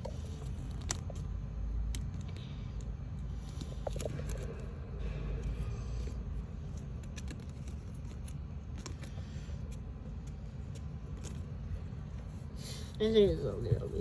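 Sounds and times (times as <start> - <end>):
steady low rumble: 0.0 - 14.0
model pieces clicking and rustling: 6.0 - 11.6.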